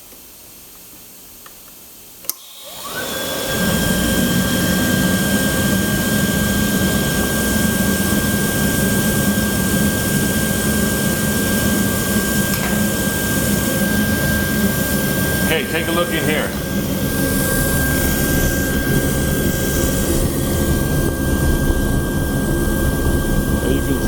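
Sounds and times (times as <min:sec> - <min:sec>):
blower motor whining: 0:02.4 - 0:24.0
burner click: 0:11.9 - 0:20.4.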